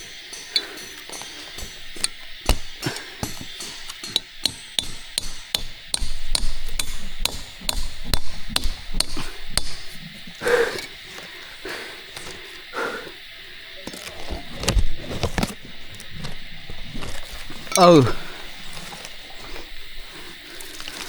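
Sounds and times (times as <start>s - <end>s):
sharp hammer-like knocks: 2.4s - 9.8s.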